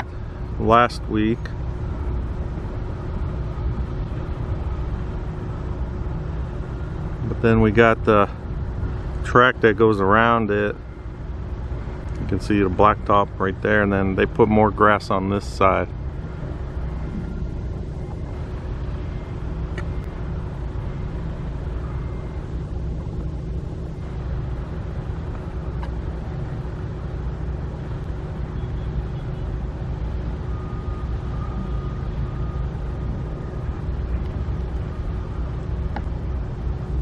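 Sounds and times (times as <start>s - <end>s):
constant low hum: 0.0s - 37.0s
low outdoor rumble: 0.0s - 37.0s.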